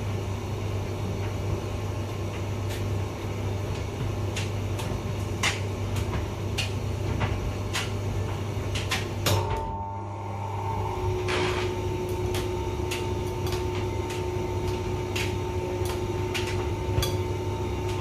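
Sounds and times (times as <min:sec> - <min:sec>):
tumble dryer humming: 0:00.0 - 0:18.0
clicks and taps from tumbling load: 0:03.7 - 0:09.4, 0:11.3 - 0:18.0
loud dryer click: 0:04.3 - 0:09.9, 0:11.0 - 0:18.0.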